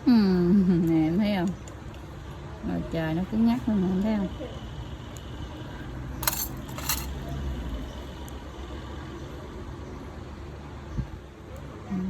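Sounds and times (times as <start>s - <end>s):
metallic clinks: 6.2s - 7.2s.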